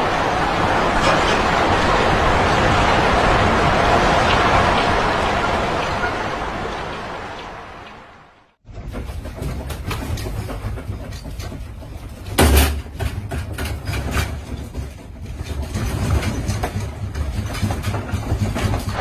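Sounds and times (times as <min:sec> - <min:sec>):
objects rattling and knocking: 0:08.6 - 0:19.0.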